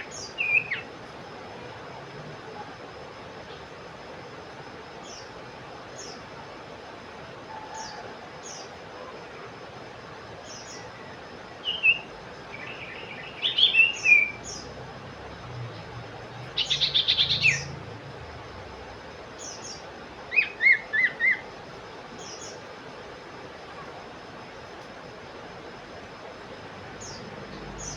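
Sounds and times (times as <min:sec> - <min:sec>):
songbirds chirping: 0:00.0 - 0:01.0, 0:05.0 - 0:06.3, 0:10.4 - 0:22.8, 0:26.8 - 0:27.9.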